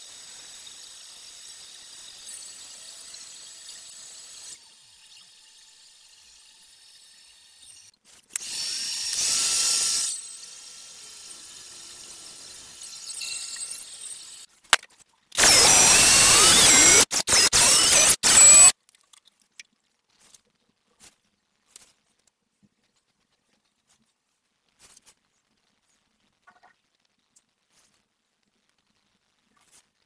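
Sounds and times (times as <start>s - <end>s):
cordless drill whining: 15.4s - 18.7s.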